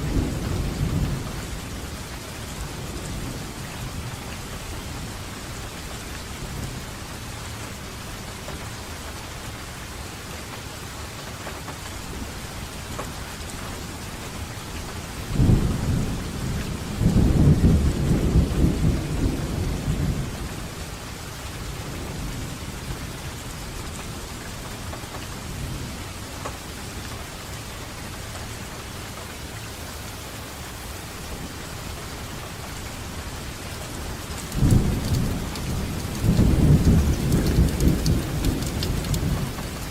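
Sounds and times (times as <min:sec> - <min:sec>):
thunder rumbling: 0:00.0 - 0:04.2, 0:15.3 - 0:20.8, 0:33.9 - 0:39.9
steady rain falling: 0:00.0 - 0:39.9.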